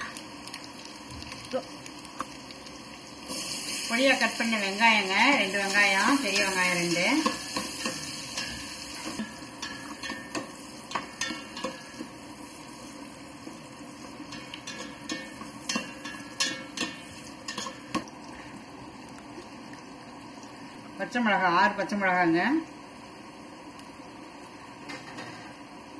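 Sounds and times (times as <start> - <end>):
onions frying in oil: 0.0 - 25.9.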